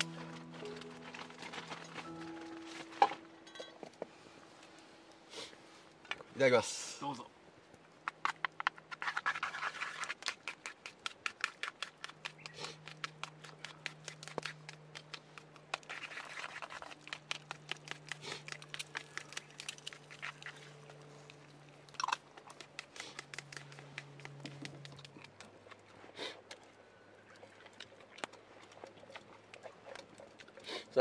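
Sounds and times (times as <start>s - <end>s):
wet chewing close up: 9.0s - 31.0s.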